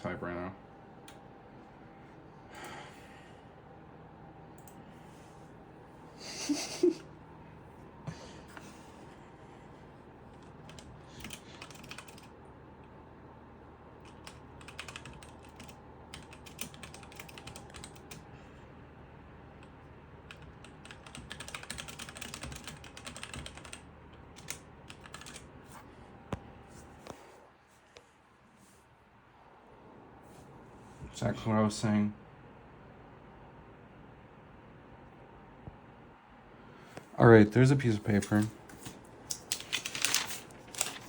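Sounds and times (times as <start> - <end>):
faint steady hum: 0.0 - 41.0
typing on computer keyboard: 10.3 - 12.3, 14.0 - 18.2, 20.3 - 25.4, 39.3 - 41.0.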